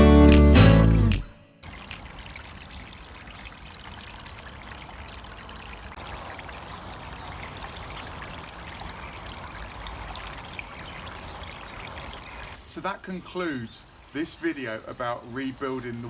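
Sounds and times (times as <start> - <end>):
waterfall splashing into pond: 0.3 - 12.9.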